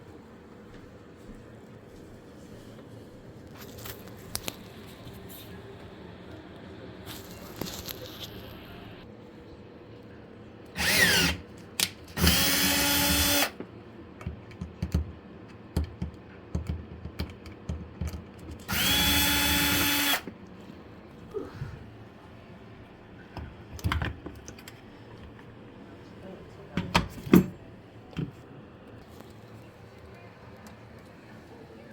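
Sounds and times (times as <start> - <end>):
cordless power drill running: 10.8 - 11.4, 12.2 - 13.6, 18.7 - 20.3.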